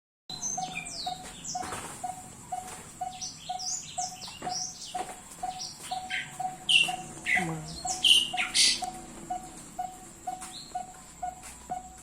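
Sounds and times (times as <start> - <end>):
birds chirping: 0.3 - 12.0
repeating low pip: 5.5 - 11.9.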